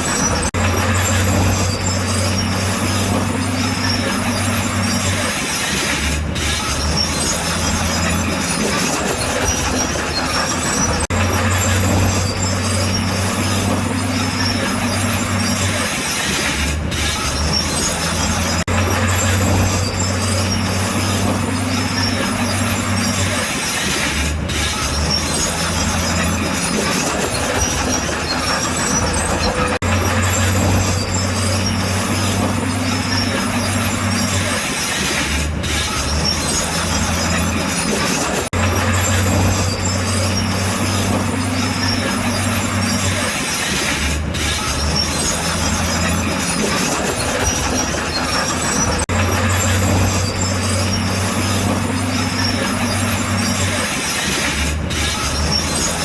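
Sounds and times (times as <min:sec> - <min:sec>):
diesel engine running loudly: 0:00.0 - 0:56.0
steel tracks clanking and squealing: 0:00.0 - 0:56.0.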